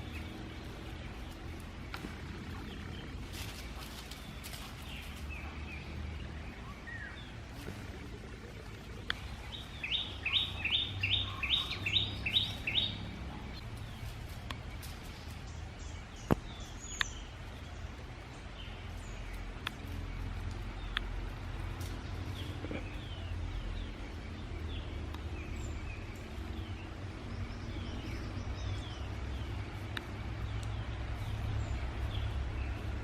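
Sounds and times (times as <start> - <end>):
faint bird chirps: 0.0 - 14.1
low outdoor rumble: 0.0 - 33.0.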